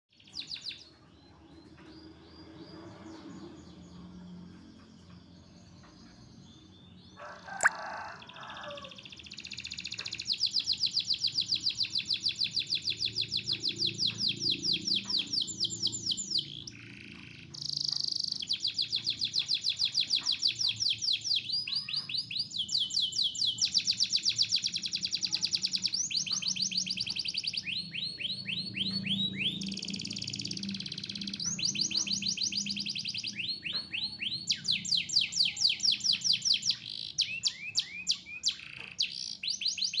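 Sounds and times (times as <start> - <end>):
canary singing trills: 2.7 - 40.0.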